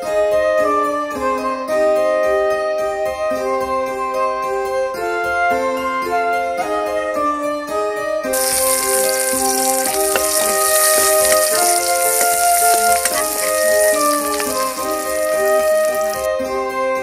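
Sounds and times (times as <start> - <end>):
onions sizzling in hot oil: 8.3 - 16.3.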